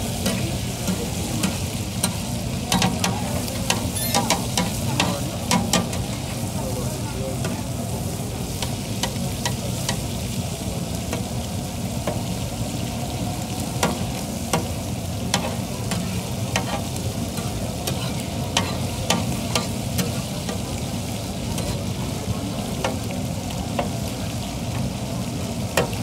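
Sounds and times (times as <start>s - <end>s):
liver sizzling on a griddle: 0.0s - 26.0s
metal spatula scraping a griddle: 0.2s - 6.2s, 15.3s - 20.2s.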